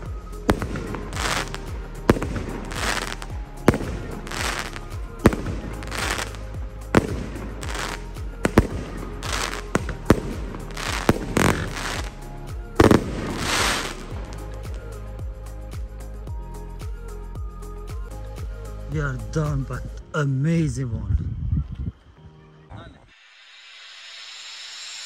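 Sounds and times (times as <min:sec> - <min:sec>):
fireworks hissing and crackling: 0:00.0 - 0:16.2, 0:23.0 - 0:25.0
firework bangs: 0:00.5 - 0:14.9.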